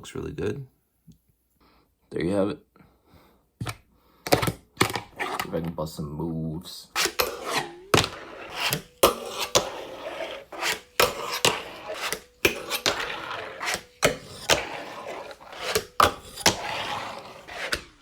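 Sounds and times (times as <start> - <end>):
fingerboard wheels rolling and scraping: 4.3 - 5.8, 6.9 - 18.0.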